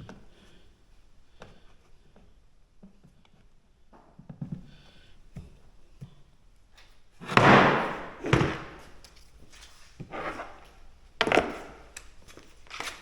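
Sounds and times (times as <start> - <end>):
wooden workpieces knocking on workbench: 7.2 - 8.8
short scrape on workbench: 10.0 - 10.7.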